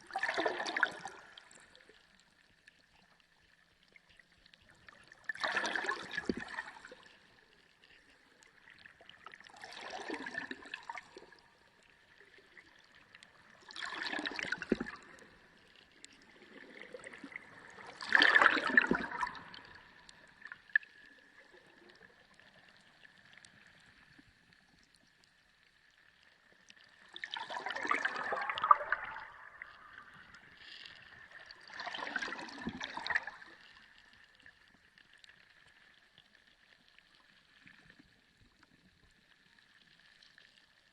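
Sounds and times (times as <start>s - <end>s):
sea water surging: 27.2s - 33.6s.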